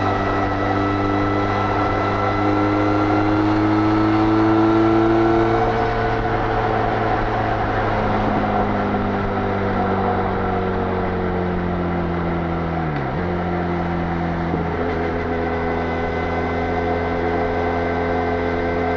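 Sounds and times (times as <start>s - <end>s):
wind noise: 0.0s - 12.1s
motorcycle engine running hard: 0.0s - 18.9s
road noise: 0.0s - 18.9s.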